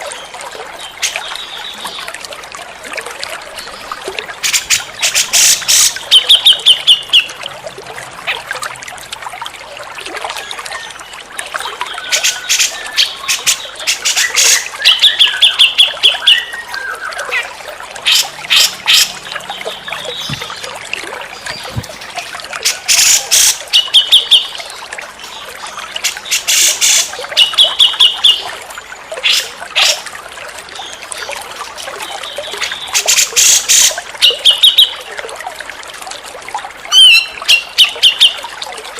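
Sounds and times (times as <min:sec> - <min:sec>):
running water trickling: 0:00.0 - 0:38.9.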